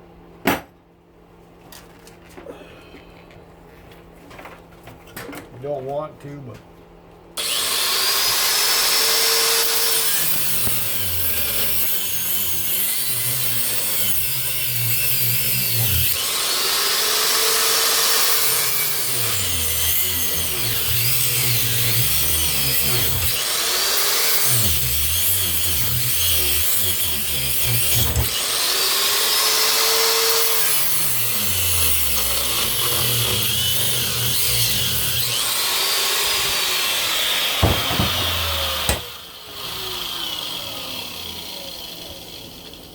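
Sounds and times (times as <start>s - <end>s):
angle grinder cutting metal: 7.4s - 42.9s.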